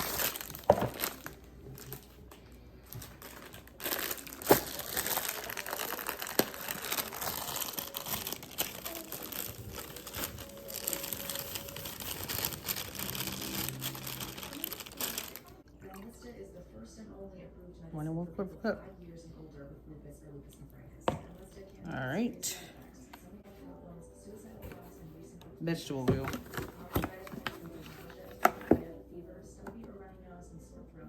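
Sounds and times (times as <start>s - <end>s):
packaging rustling and crinkling: 0.0s - 15.6s.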